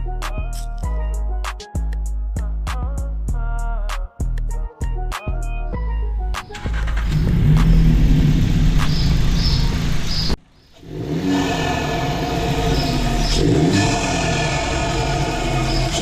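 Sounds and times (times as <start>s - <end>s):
car engine accelerating: 6.4s - 16.0s.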